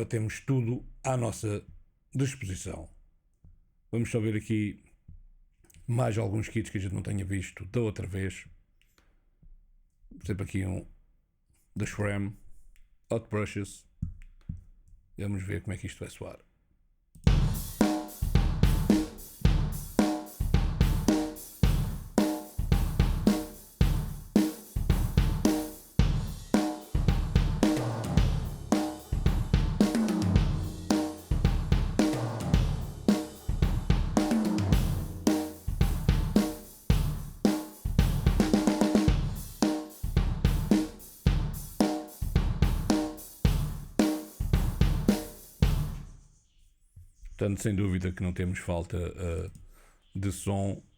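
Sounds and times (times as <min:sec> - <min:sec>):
drum kit groove: 0:17.2 - 0:46.2
tom fills: 0:17.3 - 0:46.1.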